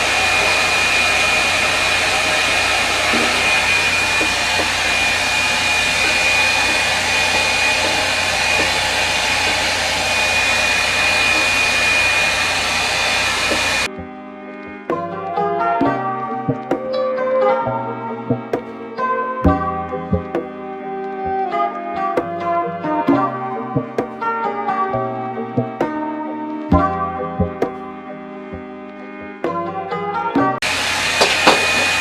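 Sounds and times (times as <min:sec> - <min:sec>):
music: 0:00.0 - 0:12.2, 0:13.5 - 0:30.7
hair dryer airflow and motor whine: 0:00.0 - 0:13.9, 0:30.6 - 0:32.0.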